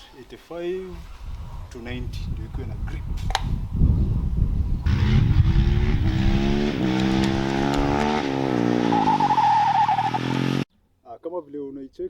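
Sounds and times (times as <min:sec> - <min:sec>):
motorcycle engine accelerating: 0:04.8 - 0:10.7.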